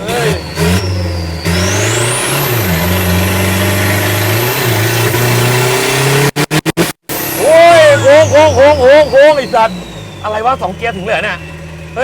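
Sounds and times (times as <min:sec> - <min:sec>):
race car engine revving hard: 0:00.0 - 0:12.0.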